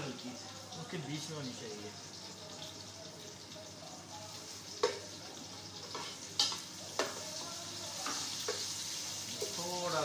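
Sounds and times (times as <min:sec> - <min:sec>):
vegetables sizzling in oil: 0:00.0 - 0:10.0
metal spatula knocking on pot: 0:05.9 - 0:07.2.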